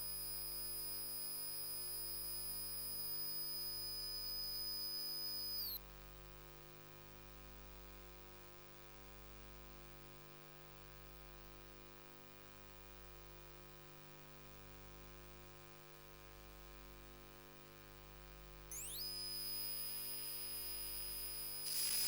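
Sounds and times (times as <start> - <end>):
electrical hum: 0.0 - 5.8, 18.7 - 22.0
high-pitched whine: 0.0 - 5.8, 18.7 - 22.0.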